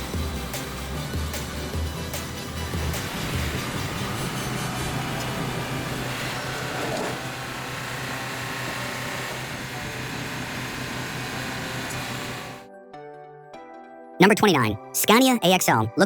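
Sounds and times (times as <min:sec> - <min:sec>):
low engine hum: 0:00.4 - 0:12.6
mechanical clatter: 0:01.4 - 0:12.6.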